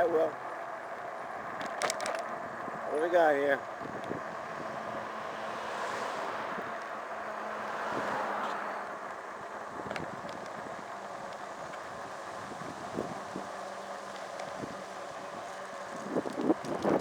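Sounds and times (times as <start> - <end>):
wind rushing over microphone: 3.8 - 5.1, 11.6 - 13.6, 14.5 - 17.0.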